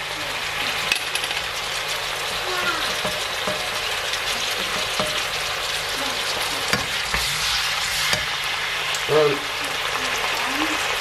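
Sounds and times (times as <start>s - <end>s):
stir-fry sizzling in a pan: 0.0s - 11.0s
spatula scraping and knocking pan: 2.8s - 8.5s.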